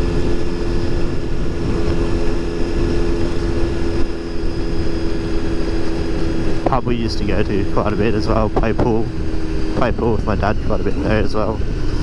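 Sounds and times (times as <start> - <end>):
motorcycle engine droning: 0.0 - 12.0
wind rumble on microphone: 0.0 - 12.0.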